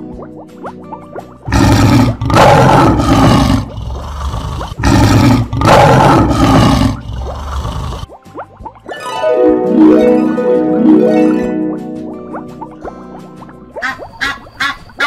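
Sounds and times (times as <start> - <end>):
lion roaring: 1.5 - 8.1.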